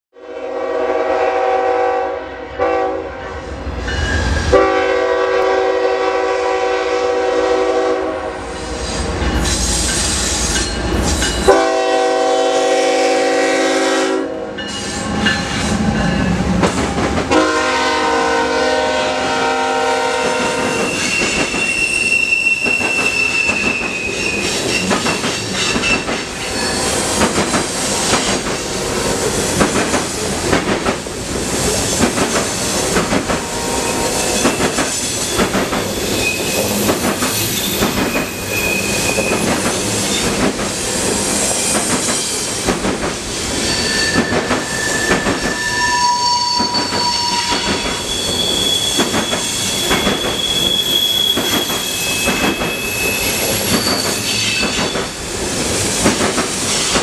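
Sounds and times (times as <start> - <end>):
locomotive air horn blasts: 0.2 - 3.4, 4.5 - 8.5, 11.5 - 14.6, 17.3 - 21.1, 33.4 - 34.4, 44.8 - 47.8
wheel squeal: 20.7 - 27.1, 34.2 - 39.5, 43.6 - 54.9
freight cars clickety-clack: 22.6 - 33.5, 34.4 - 38.4, 39.0 - 40.8, 41.5 - 43.3, 51.3 - 57.0.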